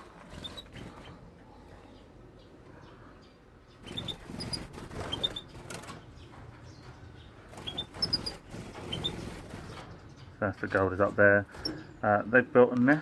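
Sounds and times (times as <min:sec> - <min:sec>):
wings flapping: 0:00.0 - 0:01.3, 0:03.8 - 0:06.4, 0:07.5 - 0:10.2
finches chirping: 0:00.2 - 0:12.7
rustling: 0:03.8 - 0:12.0.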